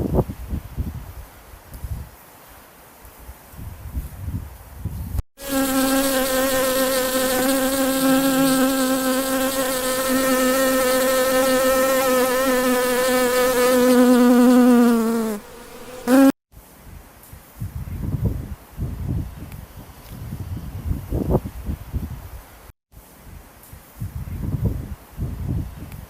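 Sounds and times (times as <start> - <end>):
flying insect buzzing: 5.4 - 16.4.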